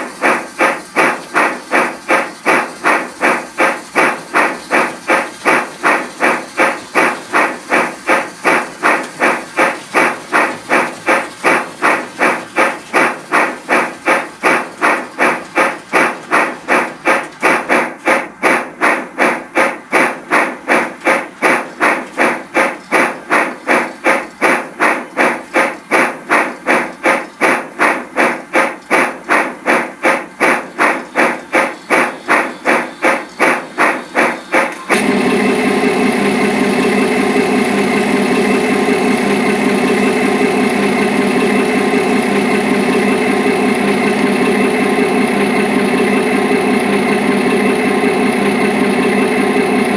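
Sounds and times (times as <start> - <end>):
steam locomotive chuffing: 0.0 - 49.9.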